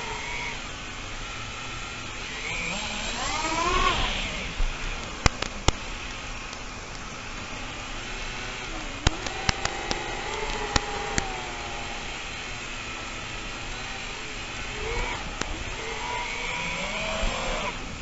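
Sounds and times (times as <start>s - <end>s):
drone propellers whirring: 0.0s - 18.0s
sharp clicks: 2.2s - 18.0s.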